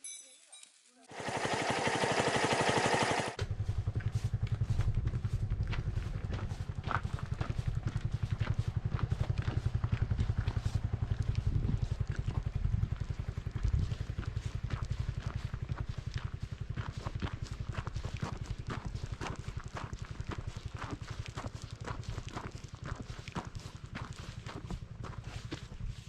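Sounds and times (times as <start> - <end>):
motorcycle engine running: 1.0 - 26.0.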